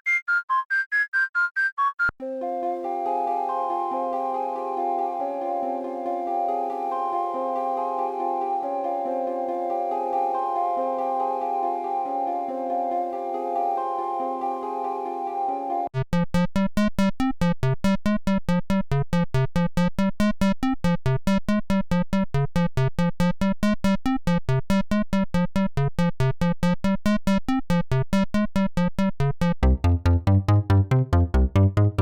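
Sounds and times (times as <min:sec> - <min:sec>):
synthesizer chord: 0:02.2 - 0:15.9, 0:29.6 - 0:32.0
fast plucked synth notes: 0:29.6 - 0:32.0
synth bass: 0:29.6 - 0:32.0.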